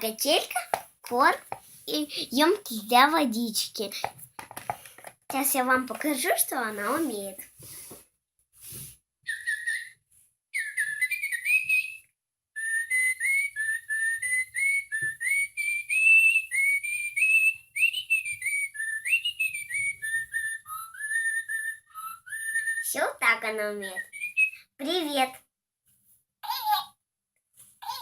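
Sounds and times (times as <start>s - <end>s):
electronic toy bird chirping: 9.3s - 10.0s, 10.6s - 12.0s, 15.4s - 24.7s.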